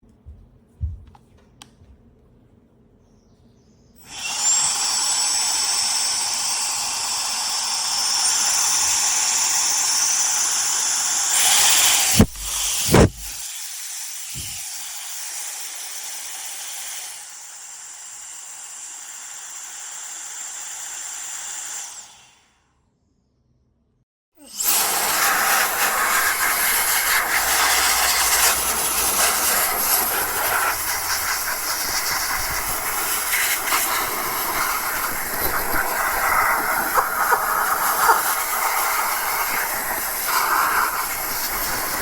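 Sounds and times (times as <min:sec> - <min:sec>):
electric air duster fan whine: 0:04.0 - 0:15.0, 0:24.5 - 0:42.0.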